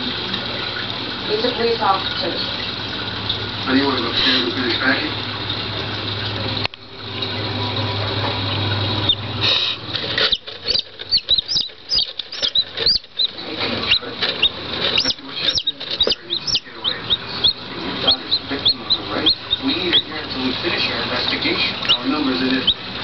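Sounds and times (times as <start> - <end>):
light tapping and scuffling: 10.0 - 17.5
chicks peeping: 10.2 - 20.5, 21.2 - 22.9.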